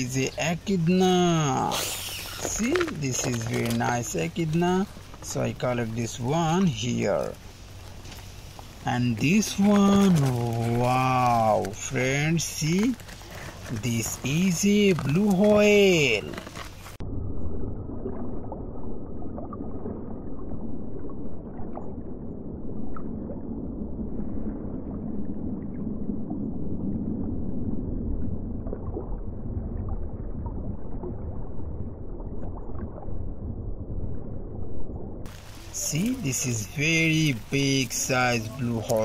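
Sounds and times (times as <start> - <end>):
sea water noise: 0.0 - 39.0
faint splashes: 35.3 - 39.0.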